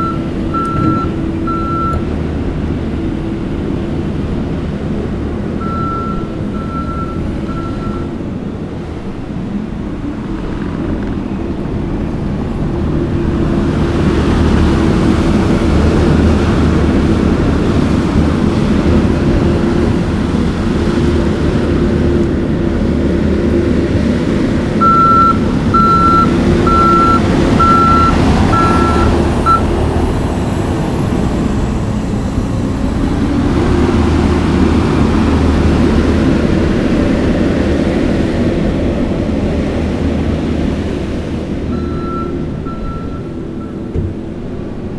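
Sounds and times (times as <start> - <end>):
backup alarm beeping: 0.0 - 2.0, 5.6 - 8.1, 24.8 - 29.7, 41.7 - 43.8
skid steer diesel engine: 0.0 - 44.9.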